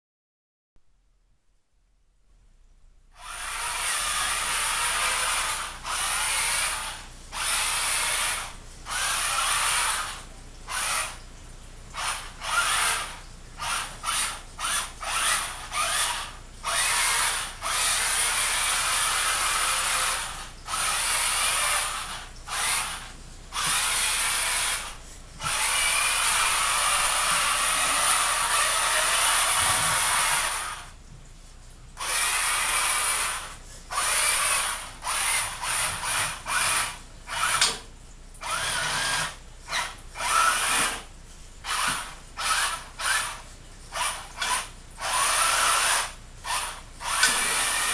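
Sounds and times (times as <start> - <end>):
electric motors and gears whining: 3.1 - 31.0, 32.0 - 47.9.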